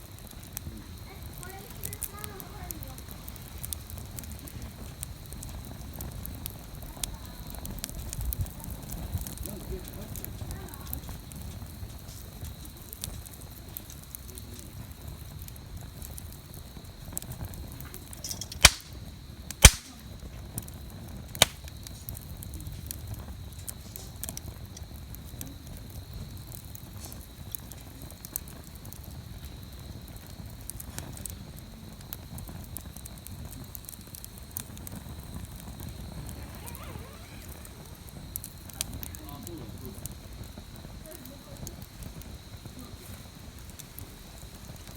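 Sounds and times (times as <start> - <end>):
wood fire crackling: 0.0 - 44.9
loud sharp snaps: 18.4 - 19.0, 19.6 - 20.0, 21.4 - 21.7.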